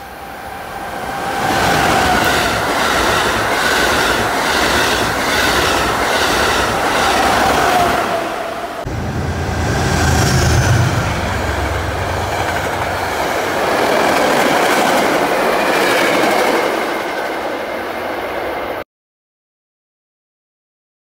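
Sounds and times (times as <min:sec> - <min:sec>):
passenger train passing: 0:00.0 - 0:18.8.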